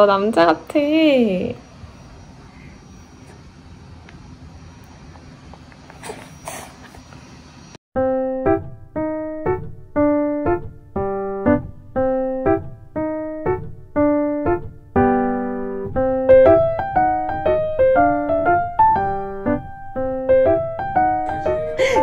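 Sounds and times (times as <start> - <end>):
bouncy electric piano tune: 8.0 - 22.0.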